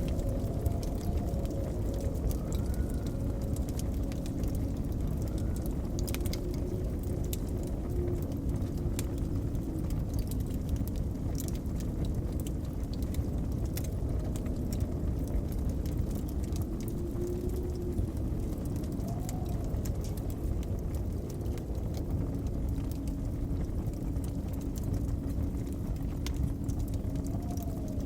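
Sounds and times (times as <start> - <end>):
blizzard wind blowing: 0.0 - 28.0
wood fire crackling: 0.0 - 28.0.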